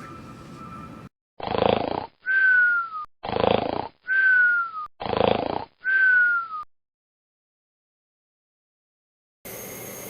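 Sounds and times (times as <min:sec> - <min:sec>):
cartoon snoring: 0:01.4 - 0:02.4, 0:03.2 - 0:04.3, 0:05.0 - 0:06.0.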